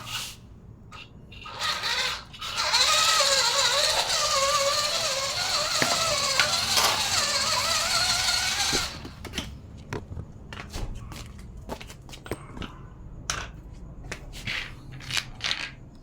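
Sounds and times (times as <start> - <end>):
small electric motor whining: 1.4 - 9.3.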